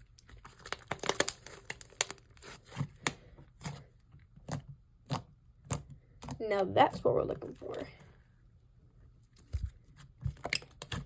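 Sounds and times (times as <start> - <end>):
slime crackling and popping: 0.0 - 3.2.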